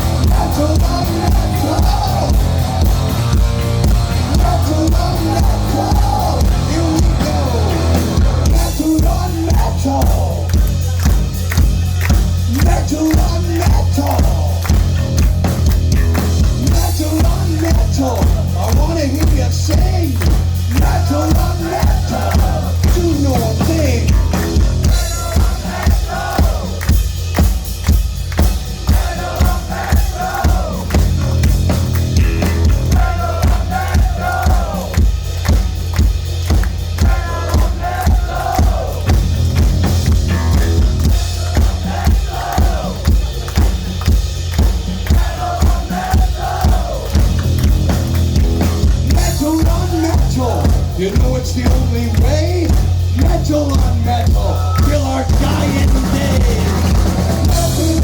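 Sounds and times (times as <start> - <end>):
bending lead guitar lines: 0.0 - 8.4
distorted electric guitar: 0.0 - 8.8, 39.2 - 41.2
drum and bass pulse: 0.0 - 58.0
heavy metal band playing: 0.0 - 58.0.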